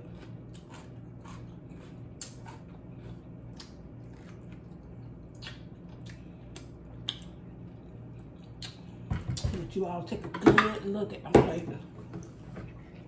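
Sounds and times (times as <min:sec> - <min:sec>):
wet chewing and lip smacks: 0:00.0 - 0:09.0.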